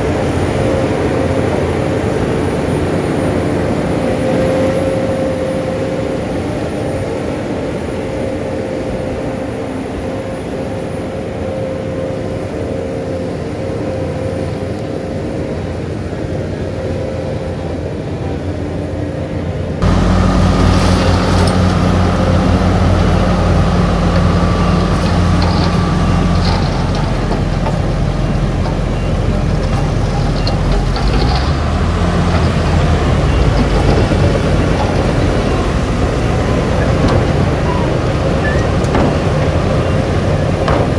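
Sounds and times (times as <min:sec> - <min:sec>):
close engine deep rumble: 0:19.8 - 0:40.9
heavy diesel machinery engines: 0:19.8 - 0:40.9.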